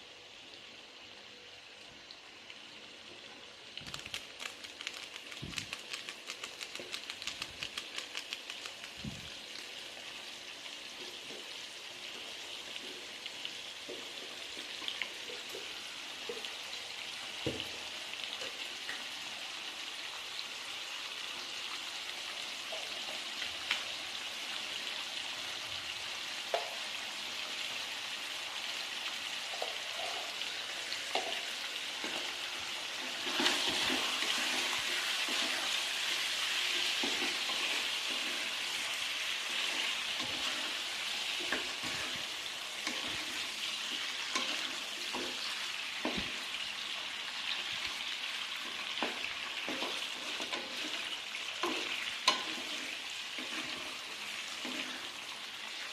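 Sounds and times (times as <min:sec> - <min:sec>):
food sizzling in a frying pan: 0:00.0 - 0:55.9
spatula scraping a pan: 0:48.9 - 0:55.3.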